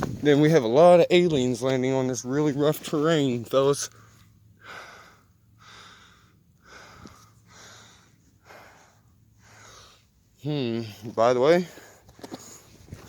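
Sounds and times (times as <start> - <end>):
man breathing hard: 4.0 - 12.9.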